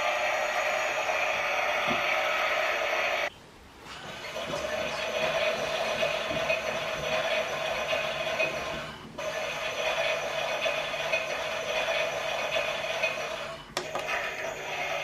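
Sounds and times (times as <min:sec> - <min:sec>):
toy washing machine whirring: 0:04.0 - 0:15.0.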